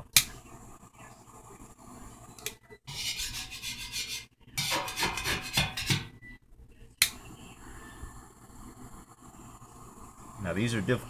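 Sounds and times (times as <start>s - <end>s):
metal scraper scraping paint: 2.9s - 6.0s.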